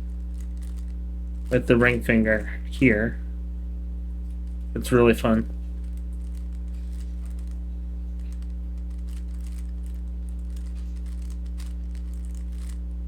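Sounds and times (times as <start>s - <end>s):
low electrical hum: 0.0s - 13.0s
puzzle cube plastic clicking: 0.3s - 1.5s, 5.8s - 7.6s, 8.2s - 12.8s.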